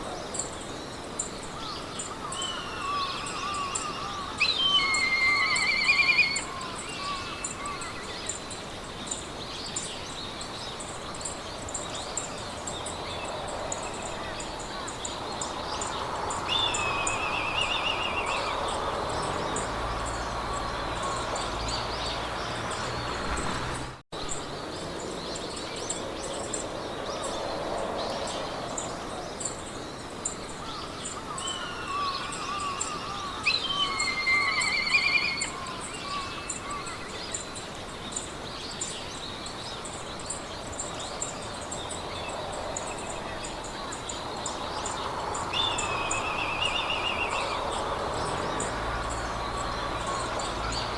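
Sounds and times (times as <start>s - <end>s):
songbirds singing: 0.0s - 50.9s
wind hiss: 0.0s - 50.9s.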